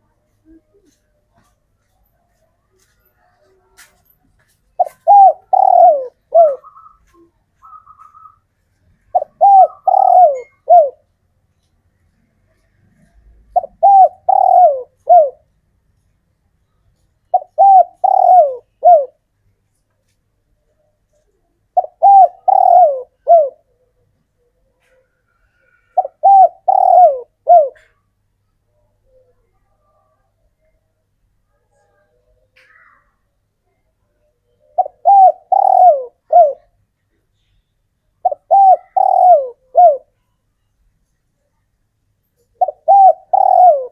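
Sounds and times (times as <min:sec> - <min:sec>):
dove cooing: 0:00.4 - 0:01.9, 0:04.8 - 0:08.4, 0:09.1 - 0:11.1, 0:12.9 - 0:15.5, 0:17.3 - 0:19.2, 0:21.1 - 0:28.1, 0:34.4 - 0:36.8, 0:38.2 - 0:40.2, 0:42.4 - 0:43.9.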